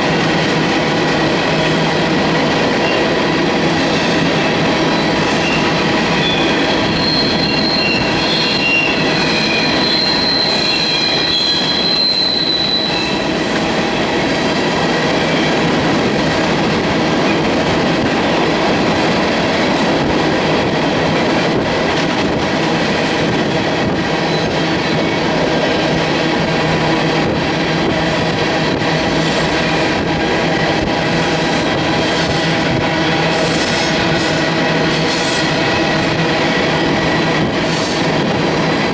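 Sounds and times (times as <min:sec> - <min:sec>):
train wheels on rails: 0:00.0 - 0:38.9
high wheel squeal: 0:05.0 - 0:13.3.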